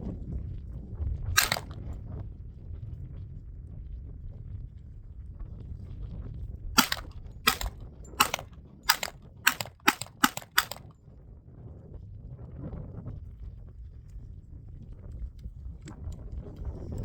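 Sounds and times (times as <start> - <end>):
gunshots: 1.4 - 1.8, 6.8 - 10.9.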